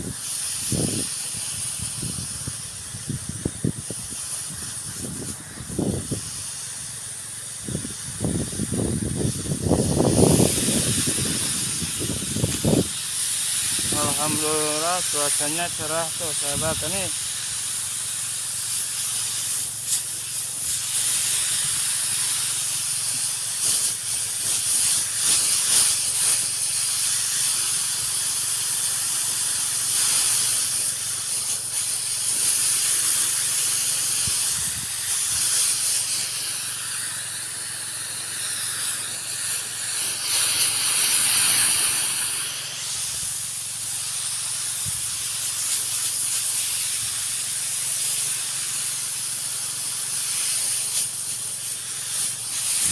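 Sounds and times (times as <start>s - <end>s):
high-pressure spray hissing: 0.0s - 52.9s
pump engine hum: 0.0s - 52.9s.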